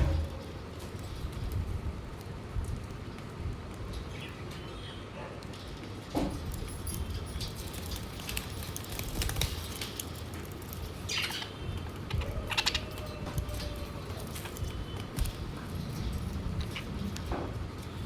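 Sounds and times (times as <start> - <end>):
wings fluttering: 6.5 - 18.0
budgies chirping: 11.0 - 17.3.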